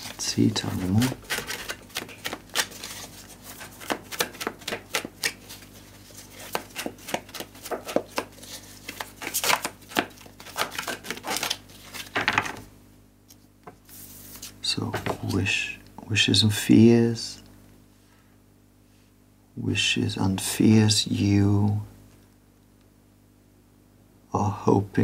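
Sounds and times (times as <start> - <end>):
cards being shuffled: 0.0 - 12.7, 13.3 - 15.5
card laid on wooden table: 14.8 - 15.4.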